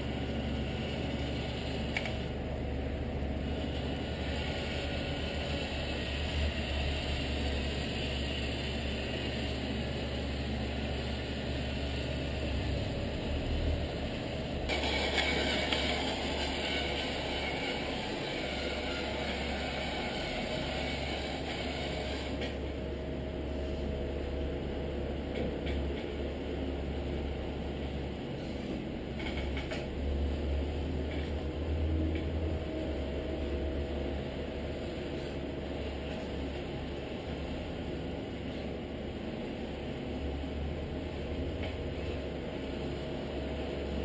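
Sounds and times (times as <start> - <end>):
higher motor whir: 3.5 - 22.8
toy truck motor whirring: 14.7 - 22.6.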